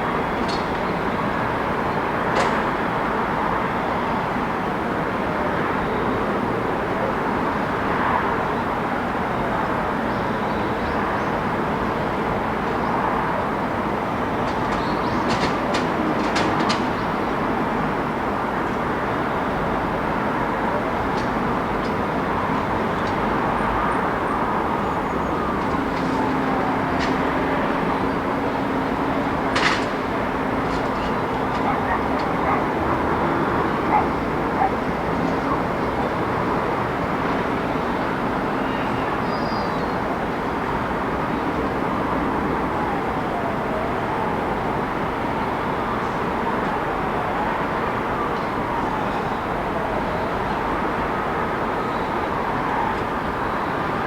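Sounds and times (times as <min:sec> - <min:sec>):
passing vehicles rushing: 0:21.4 - 0:38.6.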